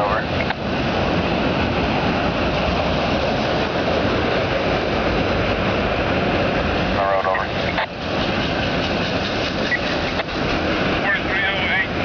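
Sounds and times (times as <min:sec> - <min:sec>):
freight cars rolling on rails: 0:00.0 - 0:12.0.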